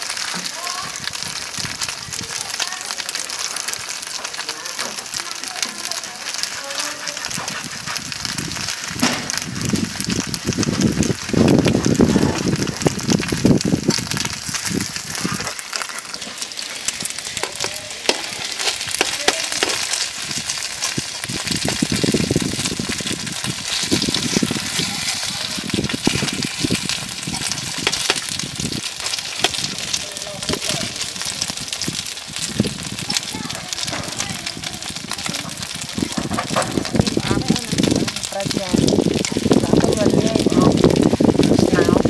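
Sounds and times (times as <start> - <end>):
rice cakes sizzling in oil: 0.0 - 42.0
metal spatula scraping a pan: 24.7 - 25.3.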